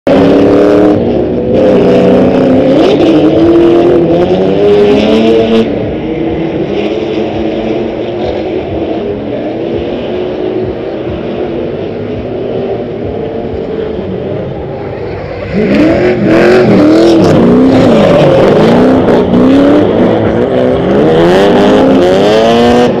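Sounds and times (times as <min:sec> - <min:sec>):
car engines revving hard: 0:00.0 - 0:23.0.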